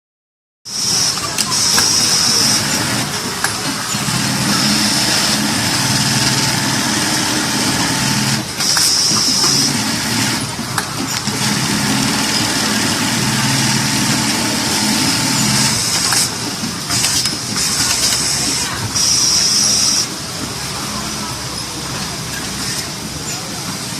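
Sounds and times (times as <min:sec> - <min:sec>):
sewing machine motor hum: 0:00.7 - 0:20.1.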